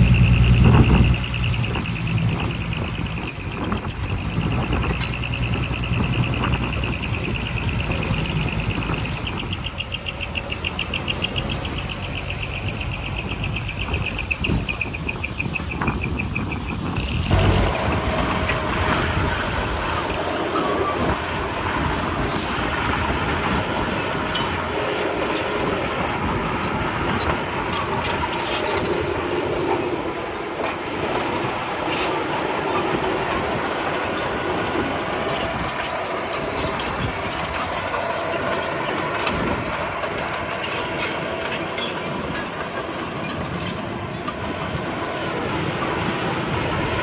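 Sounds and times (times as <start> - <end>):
bulldozer diesel engine running: 0.0 - 47.0
steel tracks clattering: 0.0 - 47.0.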